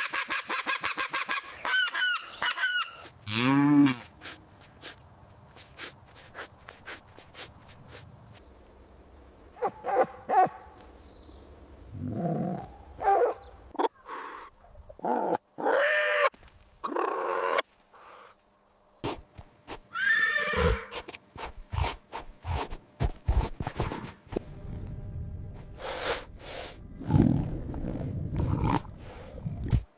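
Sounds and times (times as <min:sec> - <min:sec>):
horse neighing and whinnying: 0:19.9 - 0:21.0.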